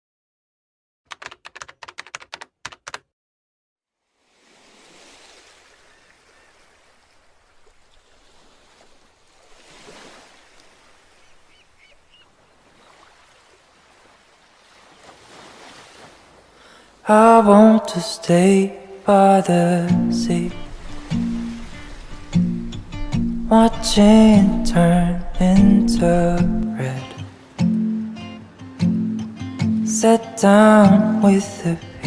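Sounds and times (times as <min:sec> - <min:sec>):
rapid sharp clicks: 0:01.1 - 0:03.0
ocean surf: 0:04.2 - 0:32.0
faint bird chirps: 0:11.1 - 0:13.0.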